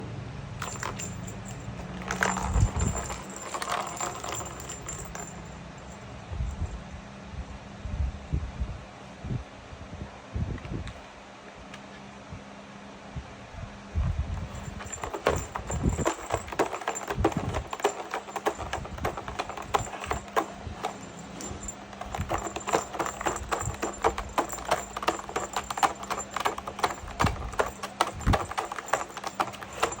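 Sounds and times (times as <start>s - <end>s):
toy clicking and clattering: 0.6s - 5.4s, 14.4s - 30.0s.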